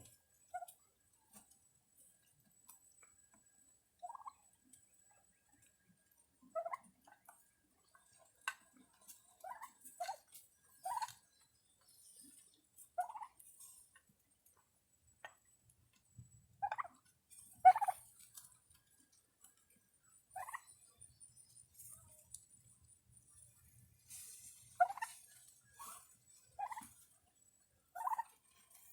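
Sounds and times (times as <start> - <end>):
turkeys yelping: 0.5 - 0.8, 4.0 - 4.5, 6.2 - 11.3, 12.2 - 13.6, 16.6 - 18.5, 20.3 - 21.0, 24.4 - 27.2, 27.9 - 28.9.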